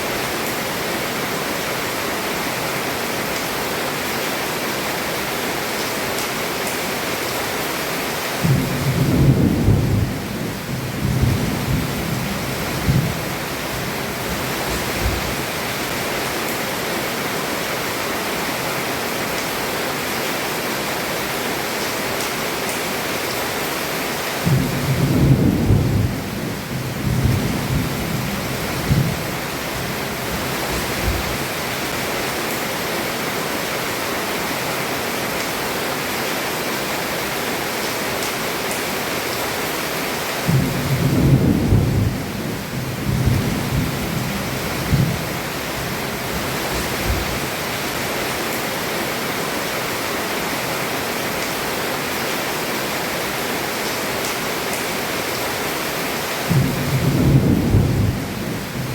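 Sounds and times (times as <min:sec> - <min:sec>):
heavy rain falling: 0:00.0 - 0:58.9
thunder rumbling: 0:08.4 - 0:15.5, 0:24.4 - 0:31.5, 0:40.5 - 0:47.6, 0:56.5 - 0:58.9.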